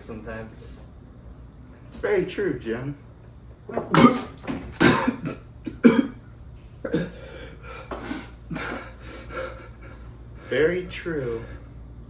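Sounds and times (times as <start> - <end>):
person coughing hard: 3.8 - 6.2, 6.8 - 9.5.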